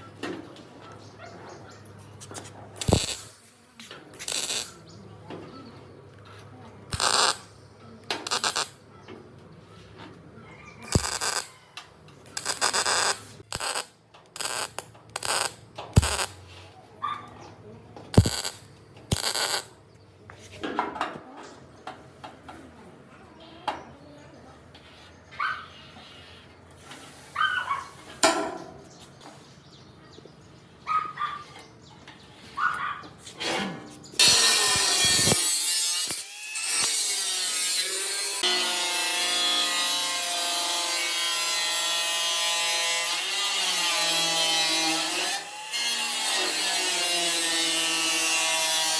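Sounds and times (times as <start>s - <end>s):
power tool cutting: 2.8s - 3.3s, 6.9s - 7.4s, 8.3s - 8.7s, 10.9s - 11.5s, 12.4s - 16.4s, 18.2s - 19.6s, 34.2s - 48.9s
scraping on metal: 31.4s - 35.4s.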